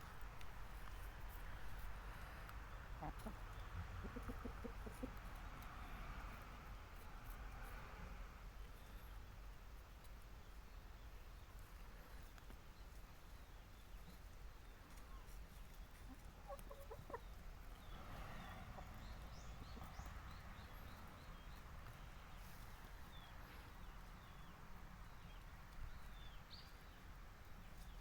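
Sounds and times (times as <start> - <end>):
hens clucking quietly: 1.5 - 7.2, 14.9 - 23.3.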